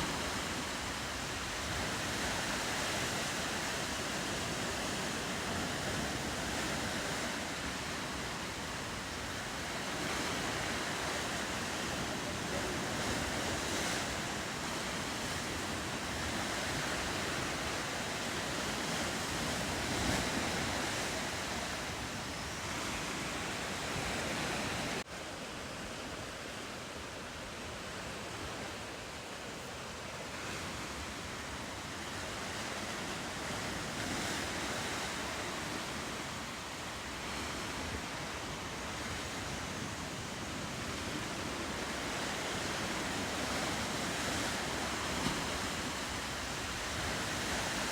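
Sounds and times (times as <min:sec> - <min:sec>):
ocean surf washing: 0:00.0 - 0:47.9.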